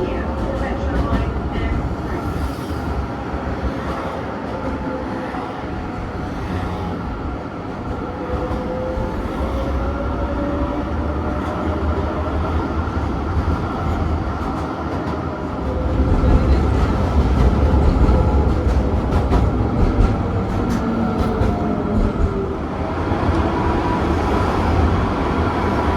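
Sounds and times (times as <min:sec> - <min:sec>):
electric tram rumbling on rails: 0:00.0 - 0:25.9.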